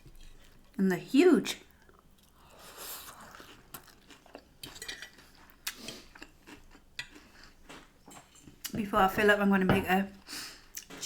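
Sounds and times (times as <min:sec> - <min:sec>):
crunching and chewing food: 0:01.6 - 0:08.7.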